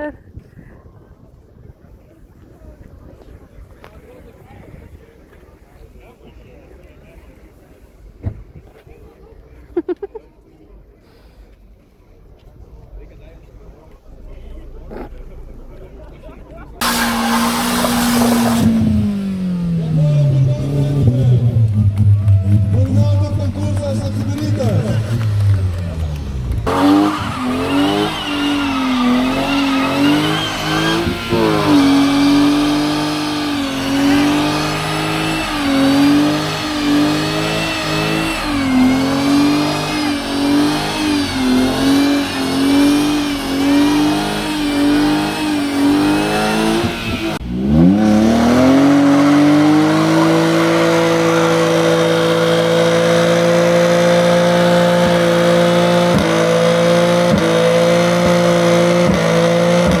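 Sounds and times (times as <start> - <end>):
car engine at high revs: 13.9 - 60.0.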